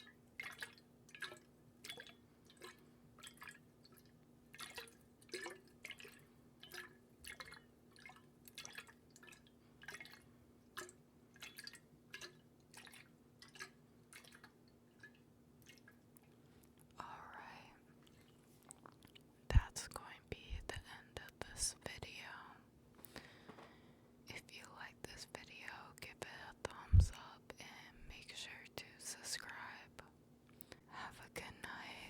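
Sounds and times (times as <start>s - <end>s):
water drops falling into water: 0.4s - 10.2s, 10.8s - 16.0s.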